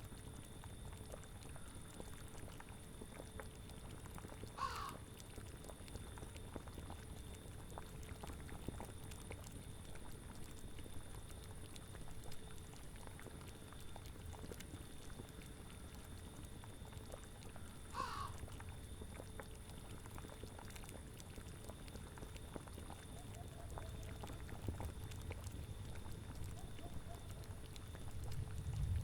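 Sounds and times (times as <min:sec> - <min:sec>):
boiling cauldron bubbling: 0:00.0 - 0:29.0
short animal call: 0:04.6 - 0:05.0
low rumble: 0:28.1 - 0:29.0.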